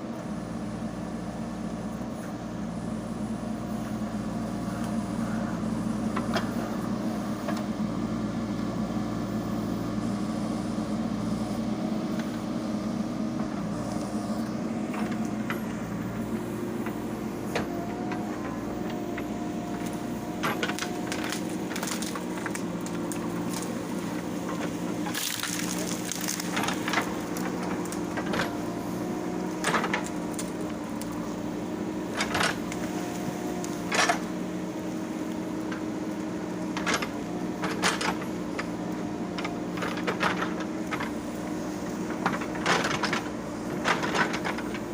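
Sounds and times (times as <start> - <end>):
diesel engine running: 0.0 - 44.9
sharp cracks and knocks: 19.8 - 23.9, 24.5 - 28.5, 29.6 - 31.2.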